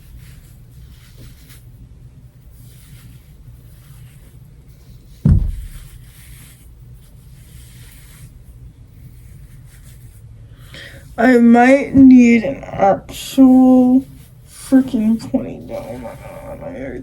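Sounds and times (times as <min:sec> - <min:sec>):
hair brushing rustle: 0:00.0 - 0:17.0
low steady hum: 0:00.0 - 0:17.0
loud thump: 0:05.2 - 0:06.0.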